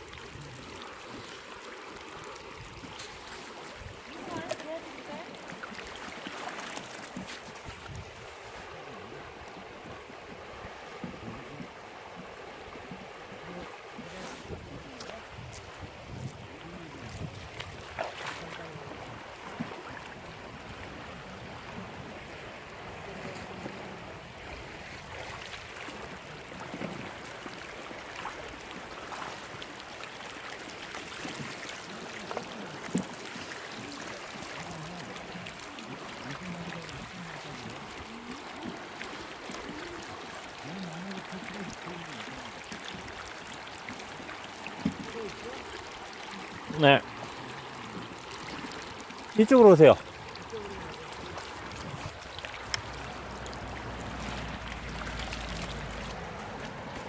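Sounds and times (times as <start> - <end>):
stream water running: 0.0 - 57.0
sharp splashes: 2.9 - 7.6, 17.6 - 18.7, 43.9 - 57.0.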